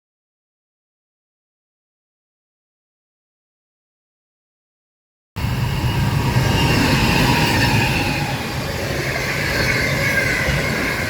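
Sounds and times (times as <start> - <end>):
faint wavering squeal: 5.4 - 11.0
train wheels rumbling on rails: 5.4 - 11.0.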